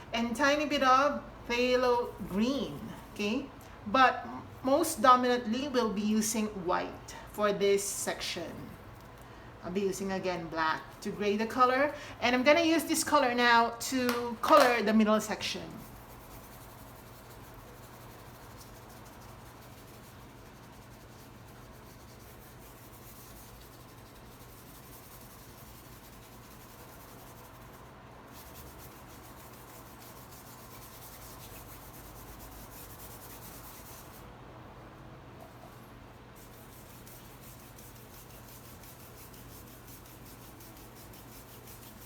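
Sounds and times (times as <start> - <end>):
low steady hum: 0.0 - 42.0
paintbrush rubbing on canvas: 15.6 - 34.3, 35.4 - 42.0.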